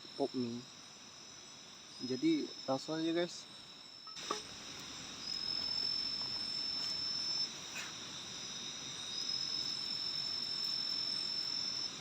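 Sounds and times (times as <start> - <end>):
unbroken insect trill: 0.0 - 12.0
insect trill breaking off: 3.9 - 12.0.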